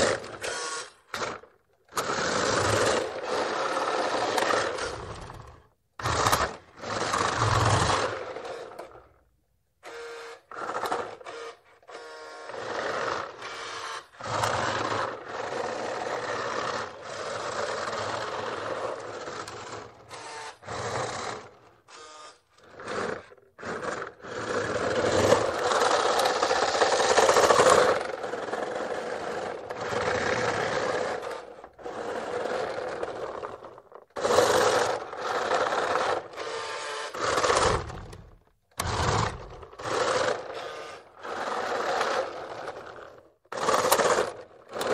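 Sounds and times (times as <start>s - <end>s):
toy electric motor whining: 0.0s - 9.2s, 9.8s - 44.9s.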